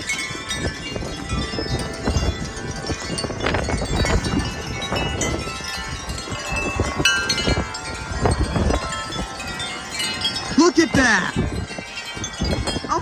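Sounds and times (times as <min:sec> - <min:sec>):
wind buffeting microphone: 0:00.0 - 0:13.0
wind chimes ringing: 0:00.0 - 0:13.0.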